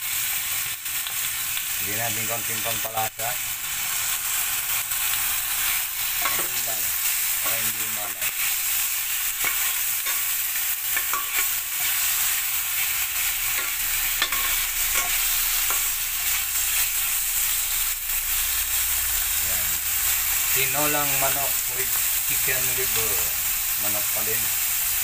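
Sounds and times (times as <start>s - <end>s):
food sizzling in hot oil: 0.0s - 25.0s
metal spatula scraping a pan: 6.0s - 17.1s.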